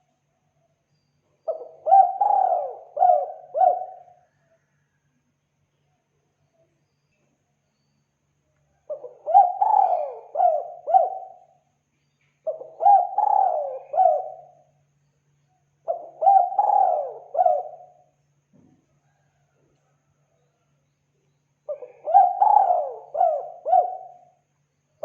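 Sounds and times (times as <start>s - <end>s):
dove cooing: 1.4s - 4.4s, 8.8s - 11.6s, 12.4s - 14.6s, 15.8s - 18.1s, 21.7s - 24.4s.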